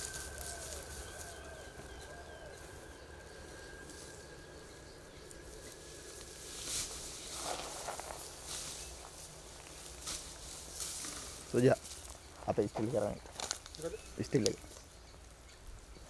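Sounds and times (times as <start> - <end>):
thin steady high tone: 0.0 - 9.5
birds calling: 0.0 - 16.0.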